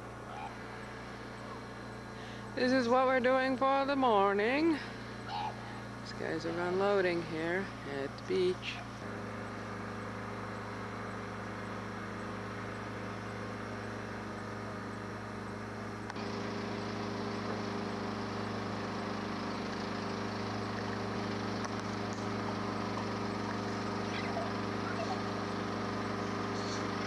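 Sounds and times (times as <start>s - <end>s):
loader engine humming: 0.0s - 27.0s.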